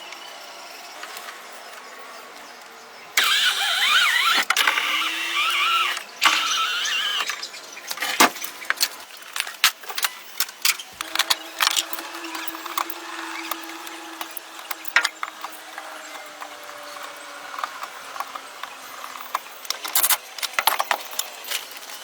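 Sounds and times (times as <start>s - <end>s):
motor whining: 3.2s - 7.5s, 11.0s - 17.9s.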